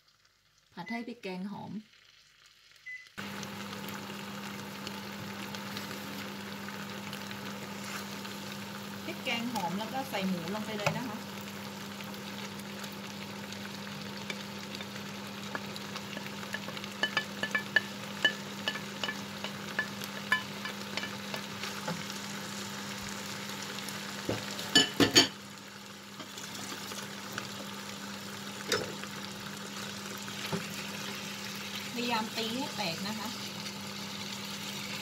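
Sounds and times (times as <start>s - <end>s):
meat sizzling in a frying pan: 0.0s - 35.0s
wooden spatula scraping and stirring: 7.7s - 8.2s.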